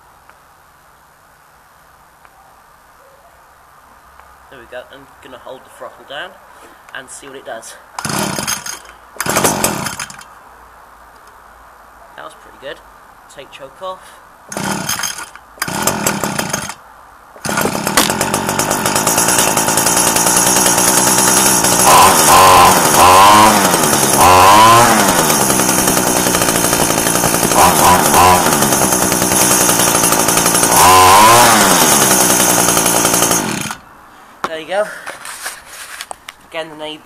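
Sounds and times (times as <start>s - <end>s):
trimmer engine idling and revving: 8.0s - 10.2s, 14.5s - 16.8s, 17.4s - 33.9s.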